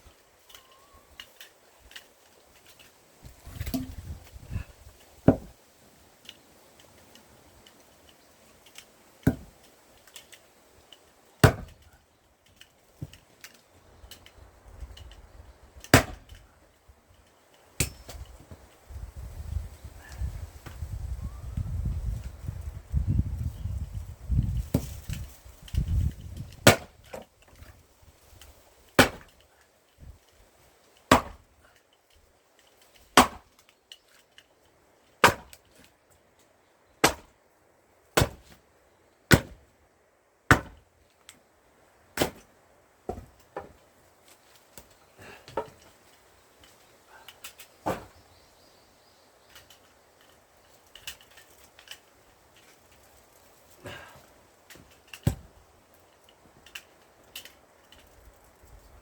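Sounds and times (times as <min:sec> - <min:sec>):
axe chopping firewood: 0:03.4 - 0:04.4, 0:05.2 - 0:05.6, 0:09.2 - 0:09.6, 0:11.4 - 0:11.9, 0:15.8 - 0:16.4, 0:17.8 - 0:18.6, 0:24.7 - 0:25.2, 0:26.4 - 0:27.7, 0:29.0 - 0:29.4, 0:31.1 - 0:31.6, 0:33.1 - 0:33.6, 0:35.2 - 0:35.6, 0:37.0 - 0:37.4, 0:38.2 - 0:38.6, 0:39.3 - 0:39.7, 0:40.5 - 0:40.9, 0:42.1 - 0:43.8, 0:44.8 - 0:45.8, 0:47.8 - 0:48.2, 0:53.8 - 0:55.6.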